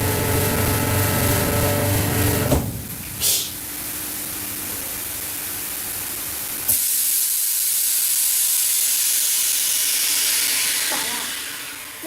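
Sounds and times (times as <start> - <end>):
loud steady hiss: 0.0 - 12.0
brief hiss: 3.2 - 3.6.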